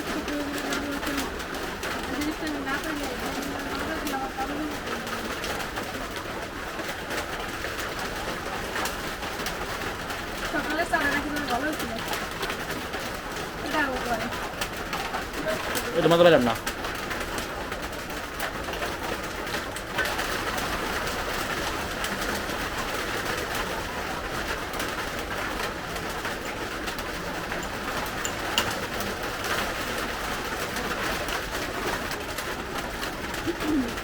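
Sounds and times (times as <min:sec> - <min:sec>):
raindrops pattering: 0:00.0 - 0:34.0
steady rain hiss: 0:00.0 - 0:34.0.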